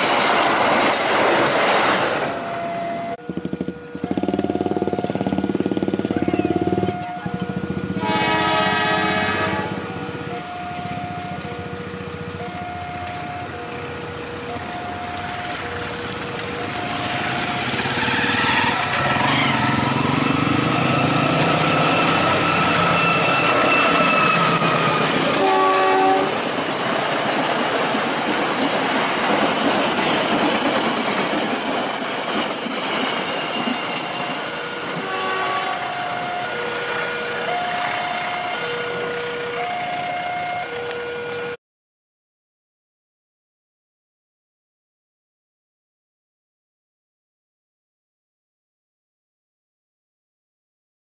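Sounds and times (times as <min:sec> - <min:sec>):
two-tone crossing alarm: 0:00.0 - 0:41.6
locomotive horn: 0:06.2 - 0:26.6, 0:33.6 - 0:41.6.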